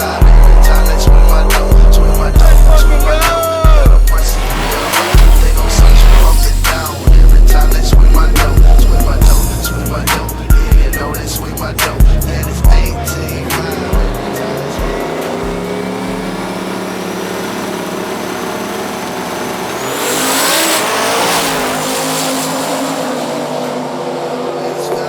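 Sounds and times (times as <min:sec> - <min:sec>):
car engine racing with whine: 0:00.0 - 0:25.0
faint music beat: 0:00.2 - 0:16.4.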